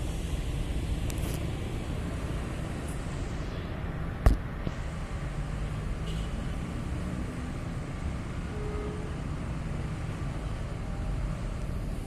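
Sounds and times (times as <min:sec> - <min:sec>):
rumble of vehicles: 0:00.0 - 0:12.0.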